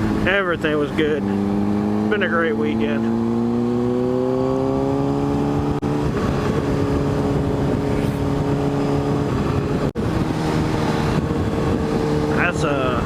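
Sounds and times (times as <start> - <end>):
motorcycle engine accelerating: 0.0 - 13.0
wind rush on microphone: 3.1 - 13.0.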